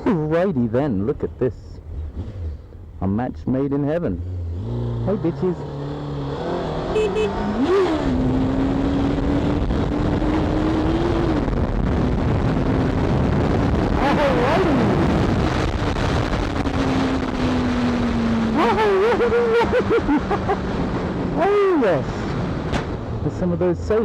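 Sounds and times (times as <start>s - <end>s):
motorcycle engine running: 5.0s - 7.6s
wind noise: 6.6s - 24.0s.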